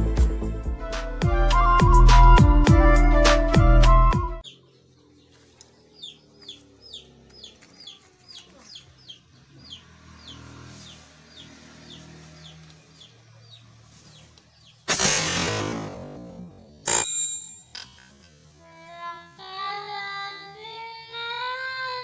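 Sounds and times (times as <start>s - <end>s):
bird chirping: 4.4s - 15.7s
loud burst of noise: 14.8s - 17.0s.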